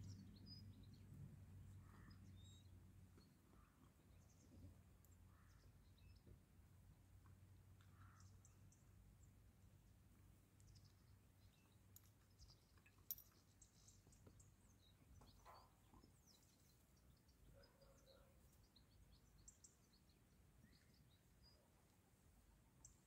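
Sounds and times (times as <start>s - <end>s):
faint bird chirps: 10.6s - 21.7s.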